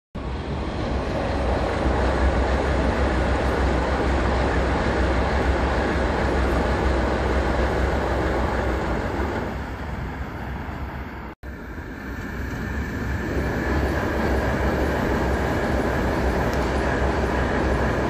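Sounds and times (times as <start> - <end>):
train rumbling past: 0.2 - 18.0.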